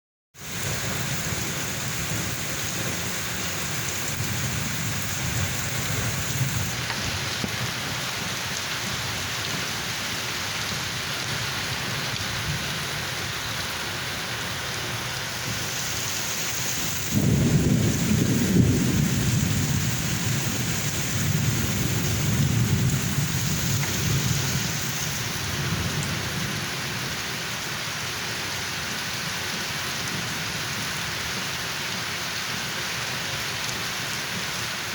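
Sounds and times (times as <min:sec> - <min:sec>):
thunder rumbling: 0:00.4 - 0:08.4, 0:15.4 - 0:27.1
steady rain hissing: 0:00.4 - 0:34.9.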